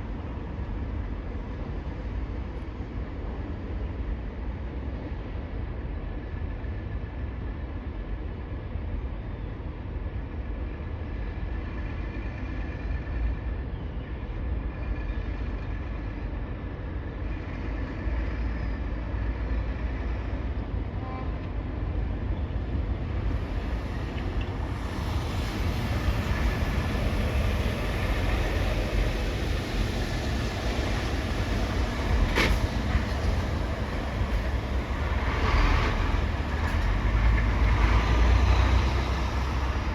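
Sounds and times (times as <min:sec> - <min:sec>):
heavy vehicles rumbling: 0:00.0 - 0:39.9.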